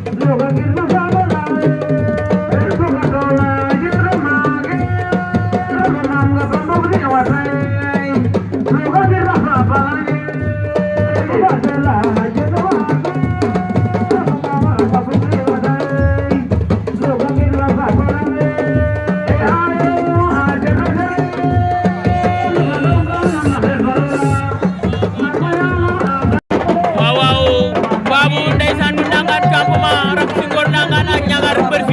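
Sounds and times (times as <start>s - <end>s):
hand drums playing: 0.0s - 31.9s
voices singing: 18.3s - 31.9s.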